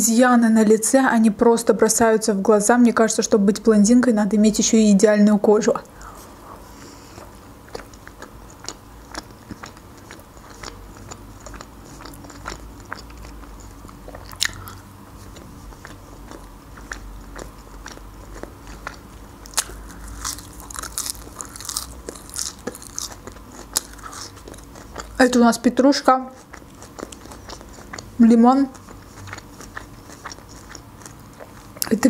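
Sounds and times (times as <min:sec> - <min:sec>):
chewing crunchy flatbread: 0:06.8 - 0:25.4, 0:26.2 - 0:32.0
chewing parsley: 0:06.9 - 0:32.0.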